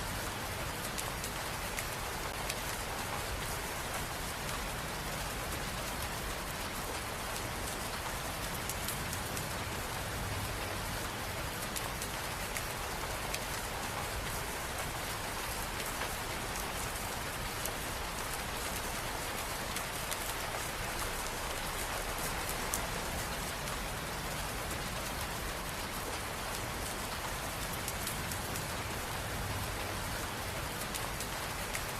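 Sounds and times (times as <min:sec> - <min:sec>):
raindrops ticking on surfaces: 0:00.0 - 0:31.9
steady rain falling: 0:00.0 - 0:31.9.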